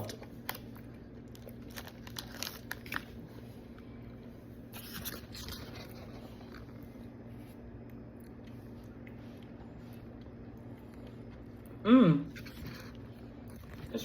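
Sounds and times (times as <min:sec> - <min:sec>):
person chewing candy: 0:00.0 - 0:03.8.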